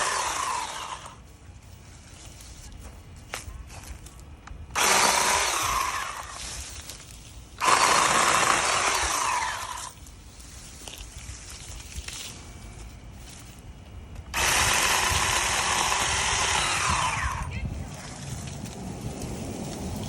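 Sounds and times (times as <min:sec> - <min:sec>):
chainsaw running: 0:00.0 - 0:01.2, 0:04.7 - 0:06.6, 0:07.6 - 0:10.0, 0:14.3 - 0:18.8.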